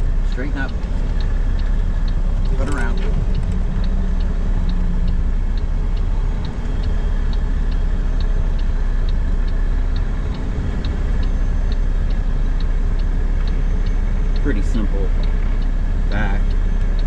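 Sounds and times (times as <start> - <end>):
indicator ticking: 0.0 - 17.0
truck engine rumble: 0.0 - 17.0.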